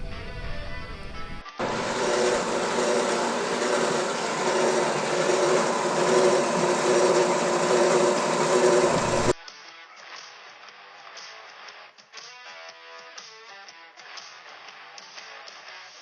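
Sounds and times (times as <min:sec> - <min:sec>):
mechanical running noise: 0:01.6 - 0:09.4.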